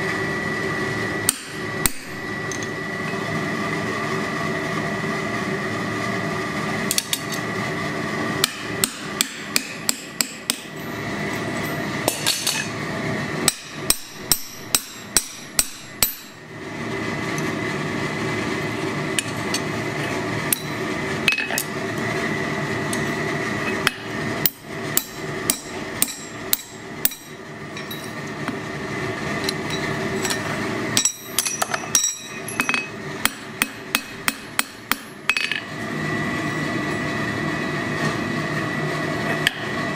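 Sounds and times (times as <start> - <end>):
steady hum: 0.0 - 39.9
hammer striking steel on anvil: 1.3 - 2.2, 8.4 - 10.8, 13.4 - 16.4, 23.8 - 28.2, 31.0 - 35.6.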